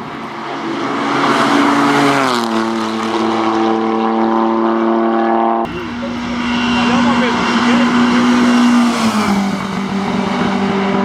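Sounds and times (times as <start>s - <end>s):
race car engine passing by: 0.1s - 11.0s
another engine: 5.7s - 11.0s.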